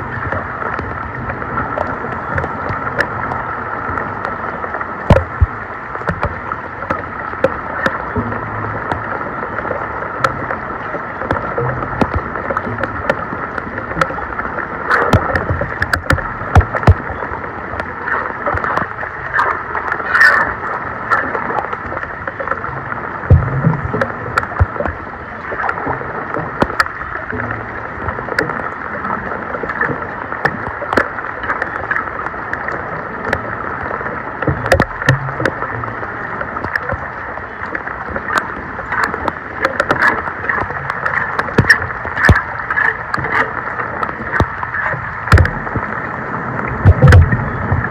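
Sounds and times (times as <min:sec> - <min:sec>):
water sloshing at storm drain: 0:00.0 - 0:47.9
sharp clicks and knocks: 0:05.1 - 0:09.1, 0:11.2 - 0:14.2, 0:14.9 - 0:17.2, 0:23.3 - 0:25.0, 0:34.4 - 0:35.6, 0:38.2 - 0:45.9, 0:46.8 - 0:47.9.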